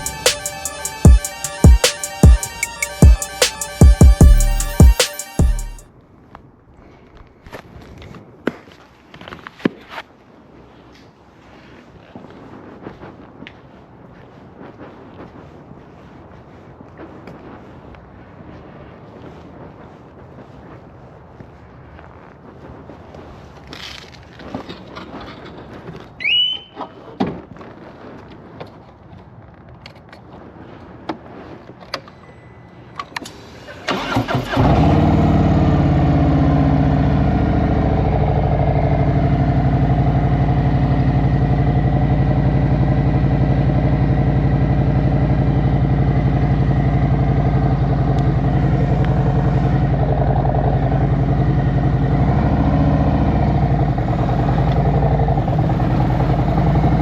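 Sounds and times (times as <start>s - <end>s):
motorcycle engine starting and idling: 0.0s - 5.8s, 33.0s - 57.0s.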